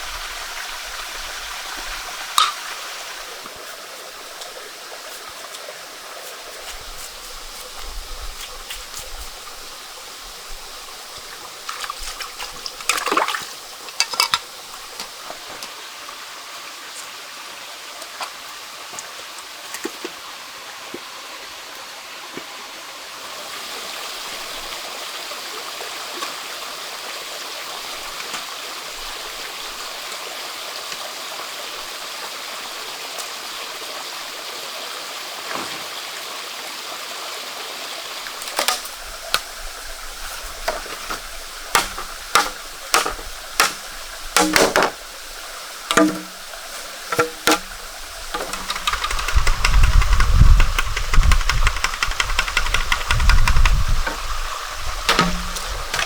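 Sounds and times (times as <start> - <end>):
stream flowing: 0.0 - 56.0
sharp knocks and clicks: 40.7 - 45.0, 45.9 - 46.4, 47.0 - 54.2, 55.1 - 56.0.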